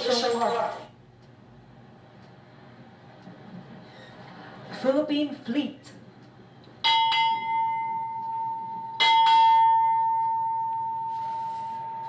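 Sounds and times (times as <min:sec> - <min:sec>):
ship's bell ringing: 0:06.8 - 0:12.0.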